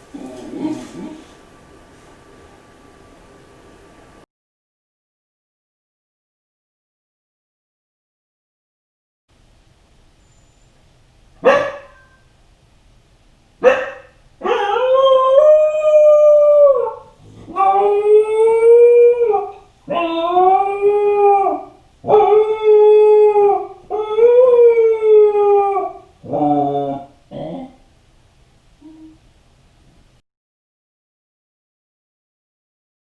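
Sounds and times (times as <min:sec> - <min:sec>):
dog howling: 0:00.0 - 0:01.5, 0:14.4 - 0:27.8
dog barking: 0:11.4 - 0:12.2, 0:13.6 - 0:14.8.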